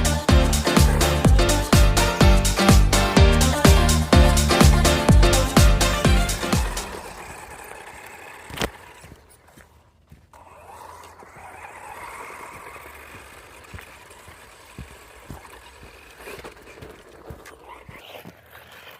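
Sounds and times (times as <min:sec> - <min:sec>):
electric motor whine: 0:06.6 - 0:09.4, 0:10.4 - 0:18.6
tyres scraping over ground: 0:06.8 - 0:18.9.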